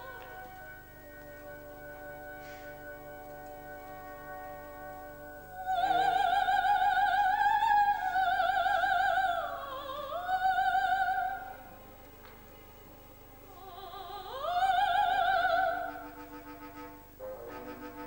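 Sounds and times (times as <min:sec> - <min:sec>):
operatic soprano singing: 0:00.0 - 0:04.8, 0:05.5 - 0:11.8, 0:13.5 - 0:16.9
soft instrumental accompaniment: 0:00.0 - 0:09.2, 0:14.6 - 0:18.0.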